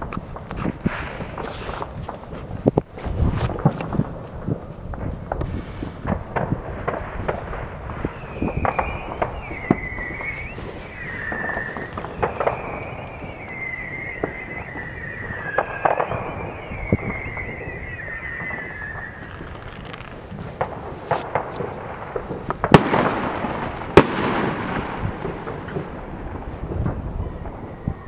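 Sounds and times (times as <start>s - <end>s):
fireworks popping and banging: 0.0s - 28.0s
high wavering whistle: 8.0s - 20.0s.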